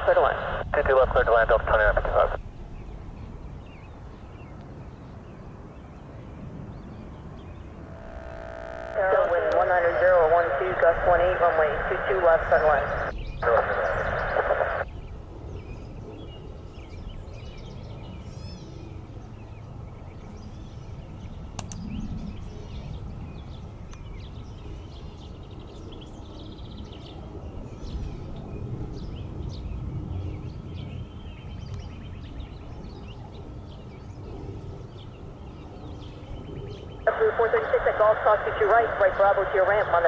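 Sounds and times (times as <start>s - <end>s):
low outdoor rumble: 0.0s - 2.4s, 6.6s - 14.8s, 37.1s - 40.0s
small birds chirping: 6.7s - 14.8s.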